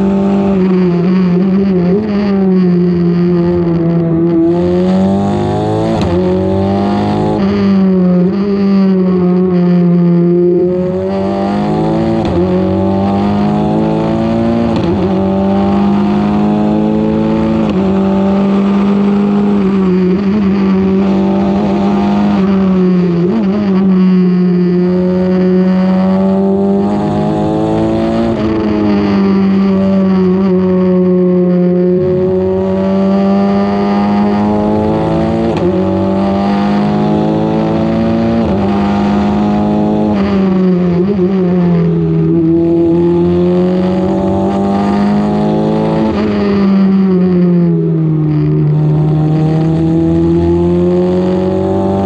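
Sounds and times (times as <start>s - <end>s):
race car engine at high revs: 0.0s - 52.0s.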